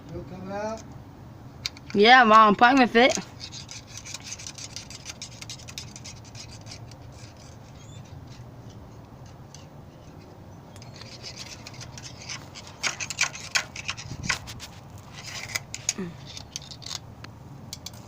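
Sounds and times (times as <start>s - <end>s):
rubbing and scraping: 2.3s - 17.1s
sharp clicks and knocks: 8.7s - 18.0s.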